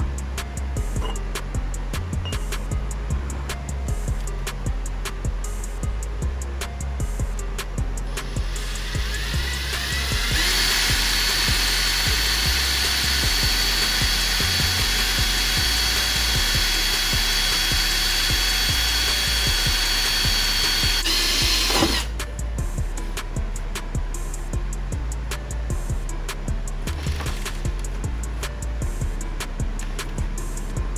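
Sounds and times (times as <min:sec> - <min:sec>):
electric drill whining: 0:08.1 - 0:22.2.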